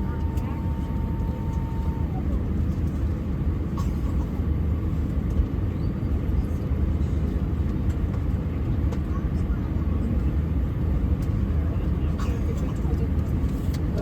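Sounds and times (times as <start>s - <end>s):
faint steady tone: 0.0s - 2.4s
low aircraft cabin rumble: 0.0s - 14.0s.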